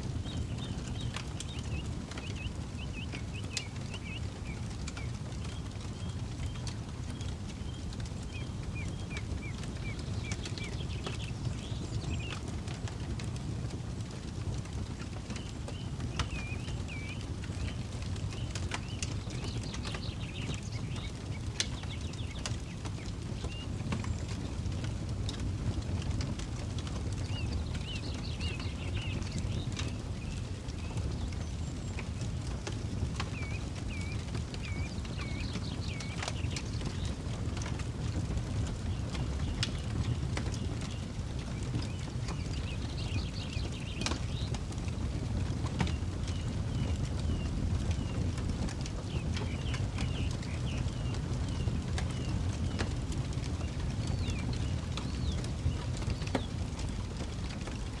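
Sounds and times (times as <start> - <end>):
campfire crackling and popping: 0.0 - 58.0
bird chirping: 0.2 - 5.1, 27.2 - 32.0, 33.4 - 37.1.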